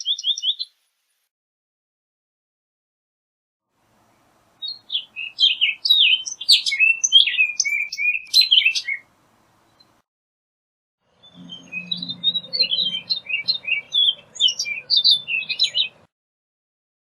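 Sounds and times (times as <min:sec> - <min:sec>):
bird singing: 0:00.0 - 0:00.8, 0:04.0 - 0:10.0, 0:11.1 - 0:16.1.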